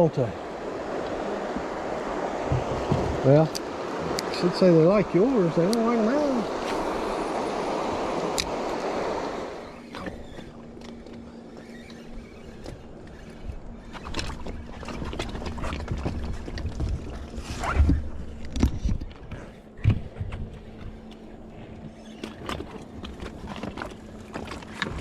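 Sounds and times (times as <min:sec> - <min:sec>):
faint steady hum: 0:00.0 - 0:25.0
water rushing around boat: 0:00.0 - 0:25.0
knocks against boat hull: 0:02.4 - 0:03.2.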